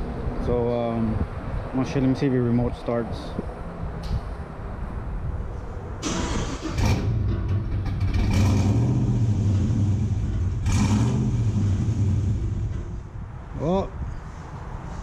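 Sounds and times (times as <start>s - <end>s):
truck engine starting unevenly: 6.0s - 13.1s.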